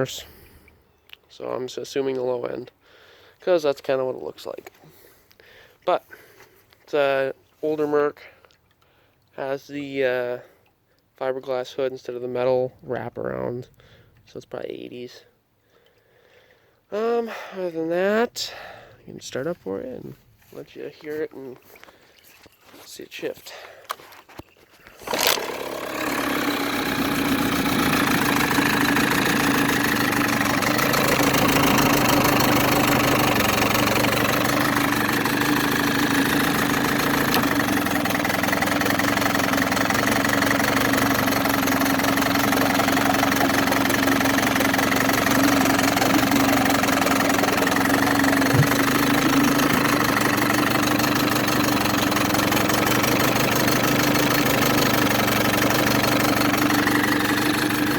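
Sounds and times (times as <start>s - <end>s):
outboard motor running: 0.0s - 0.8s, 24.9s - 57.9s.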